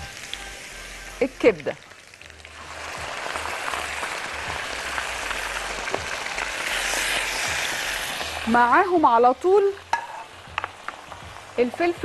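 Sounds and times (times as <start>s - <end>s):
liver sizzling in hot oil: 0.0s - 12.0s.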